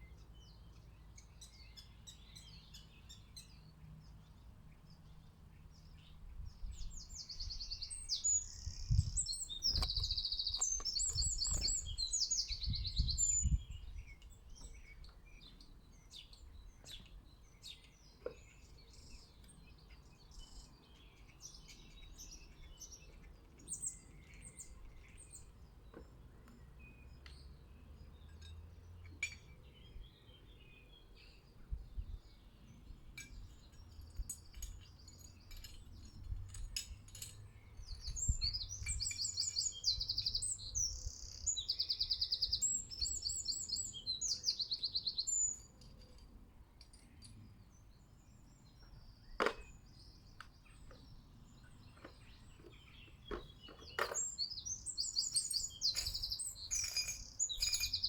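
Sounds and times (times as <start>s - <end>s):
songbirds singing and chirping: 0.0s - 58.0s.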